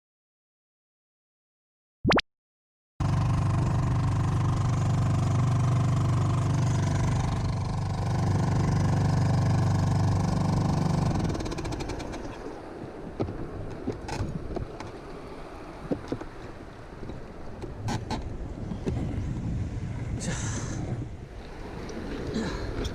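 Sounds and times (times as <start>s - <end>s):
outboard motor running: 3.0s - 19.9s.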